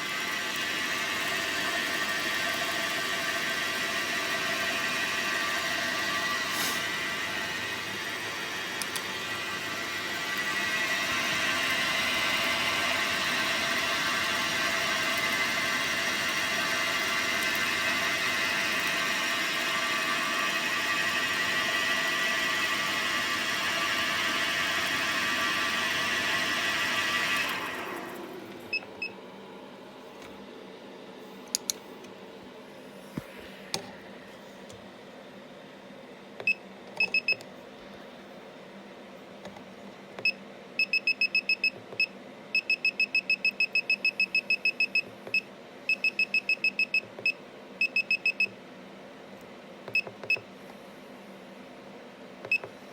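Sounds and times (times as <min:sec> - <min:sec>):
lathe humming: 0:00.0 - 0:28.7.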